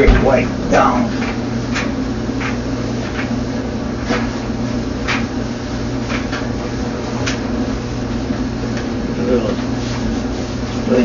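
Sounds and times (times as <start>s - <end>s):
steady low hum: 0.0s - 11.0s
cloth rag wiping: 9.3s - 11.0s.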